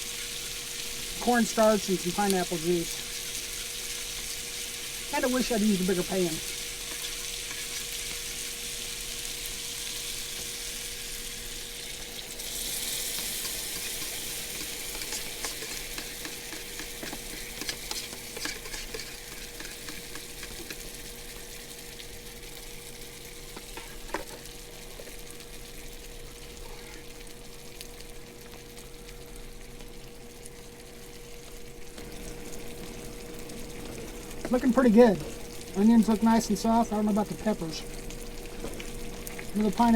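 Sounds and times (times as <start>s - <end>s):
food sizzling in a frying pan: 0.0s - 39.9s
utensil scraping a pan: 6.8s - 8.1s, 12.6s - 21.0s, 23.5s - 24.5s.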